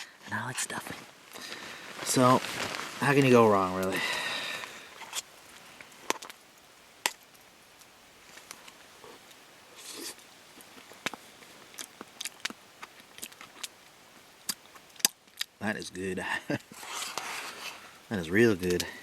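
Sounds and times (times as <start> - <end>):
soft rustling: 0.1 - 6.3, 16.5 - 19.0
utensil scraping a pot: 16.7 - 17.9.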